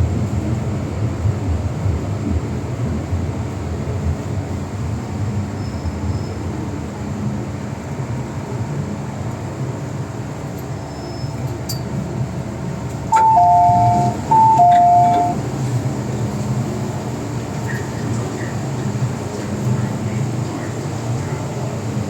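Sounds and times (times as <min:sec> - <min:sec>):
train equipment hum: 0:09.0 - 0:22.0
electronic two-tone chime: 0:13.1 - 0:15.4.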